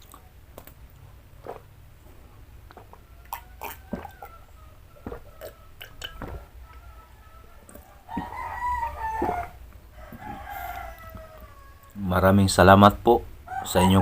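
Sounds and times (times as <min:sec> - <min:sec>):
person chewing food: 0:00.0 - 0:06.7, 0:07.6 - 0:11.2
rooster crowing: 0:03.0 - 0:12.0, 0:13.5 - 0:14.0.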